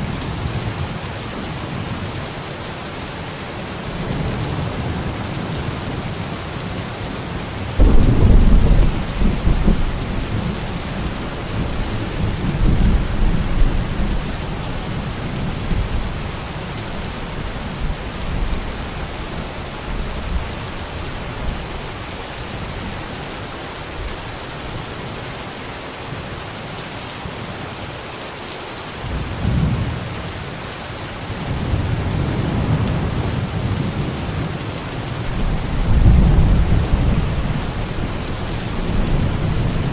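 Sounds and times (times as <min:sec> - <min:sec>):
steady rain falling: 0:00.0 - 0:39.9
low thunder rolling: 0:07.8 - 0:16.3, 0:35.3 - 0:39.9.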